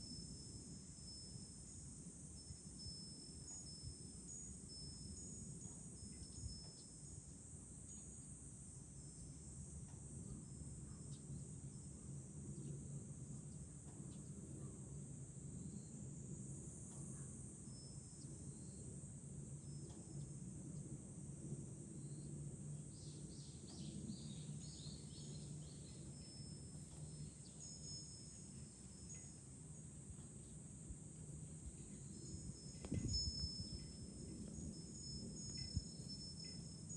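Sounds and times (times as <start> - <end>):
cicadas chorus: 0.0 - 36.9
wind chime ringing: 25.0 - 29.9, 31.4 - 36.9.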